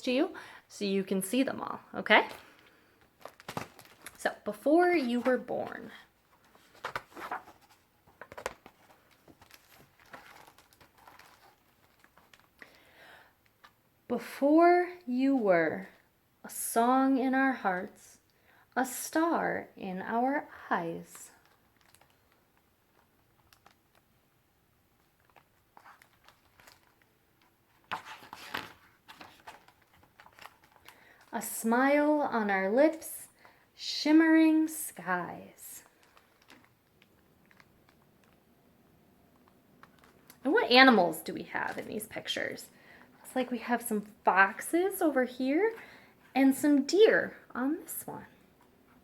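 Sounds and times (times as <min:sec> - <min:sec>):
paper rustling: 0:02.2 - 0:04.3, 0:04.9 - 0:12.6, 0:25.1 - 0:31.4
soft clicks of book handling: 0:05.2 - 0:12.8, 0:21.3 - 0:24.1, 0:25.0 - 0:31.4, 0:35.8 - 0:38.5, 0:39.3 - 0:40.5.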